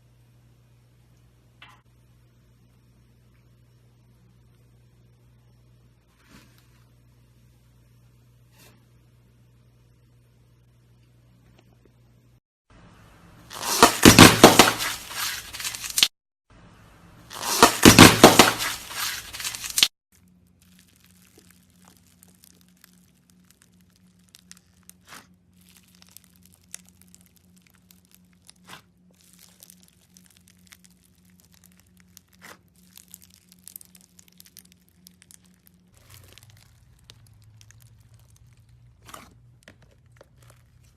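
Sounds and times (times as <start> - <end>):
slime crackling and popping: 13.5 - 16.1, 17.3 - 40.9.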